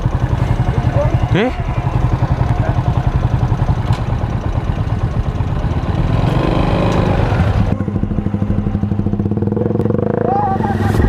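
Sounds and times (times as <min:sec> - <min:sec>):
motorcycle engine idling: 0:00.0 - 0:10.8.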